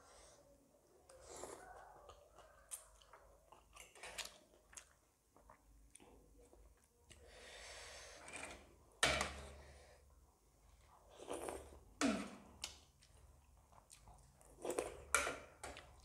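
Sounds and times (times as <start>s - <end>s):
person chewing noodles: 1.1s - 7.6s, 10.7s - 16.0s.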